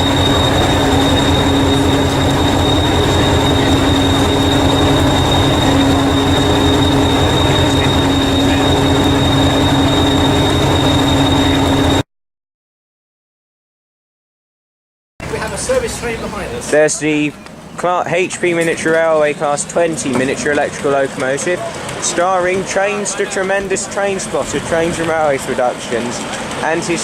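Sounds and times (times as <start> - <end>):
train running: 0.0 - 12.0, 18.6 - 27.0.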